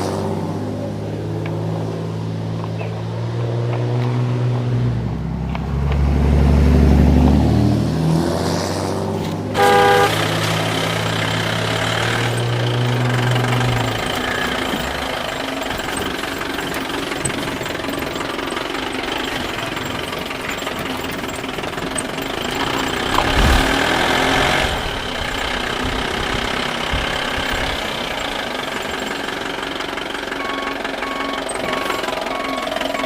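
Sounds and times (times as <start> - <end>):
backhoe engine running: 9.1 - 33.0.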